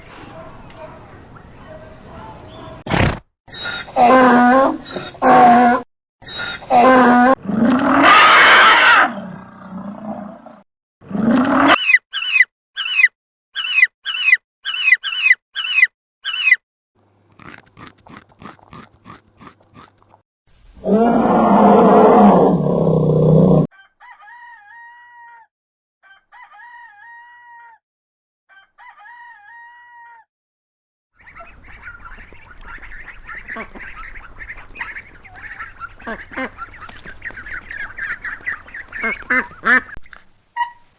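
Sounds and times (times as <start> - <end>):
whistled calls: 0.0 - 3.1, 31.2 - 40.0
loud animal call: 0.0 - 3.2
quick falling chirps: 2.4 - 3.2.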